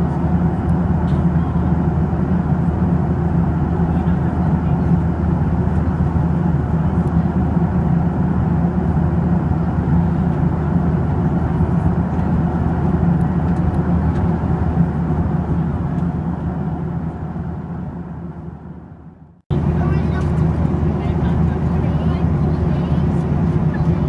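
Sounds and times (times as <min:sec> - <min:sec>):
airplane cabin drone: 0:00.0 - 0:24.0.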